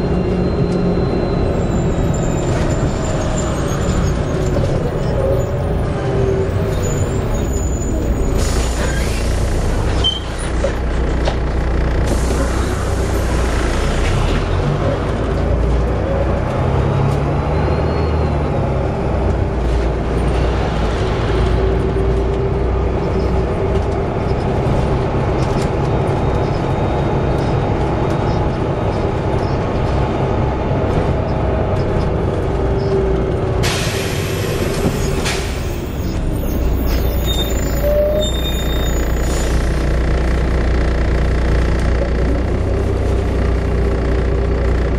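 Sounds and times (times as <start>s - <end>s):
bus engine running: 0.0s - 44.9s
air brake hiss: 33.6s - 35.7s
drivetrain whine: 34.7s - 44.9s.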